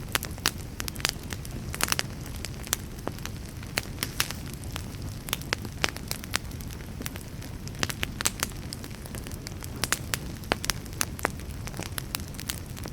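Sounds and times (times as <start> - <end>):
low rumble of flames: 0.0 - 12.9
wood fire crackling and popping: 0.0 - 12.9.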